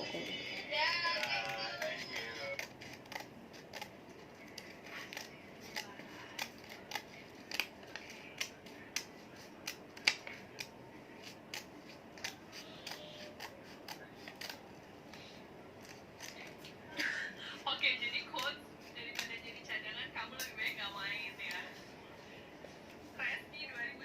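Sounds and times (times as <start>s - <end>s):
scissors cutting paper: 0.9s - 16.7s, 18.4s - 19.5s.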